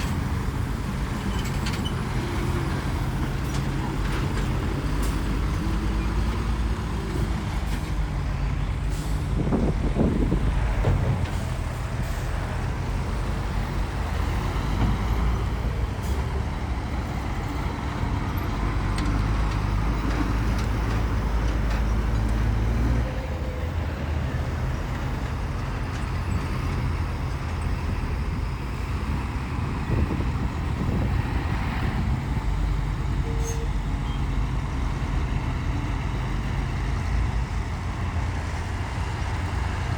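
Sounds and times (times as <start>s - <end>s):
heavy diesel machinery droning: 0.0s - 39.9s.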